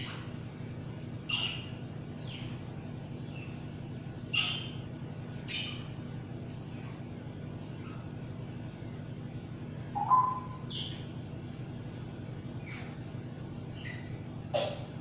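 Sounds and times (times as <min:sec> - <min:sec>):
steady low hum: 0:00.0 - 0:15.0
bird short sharp calls: 0:10.0 - 0:11.0.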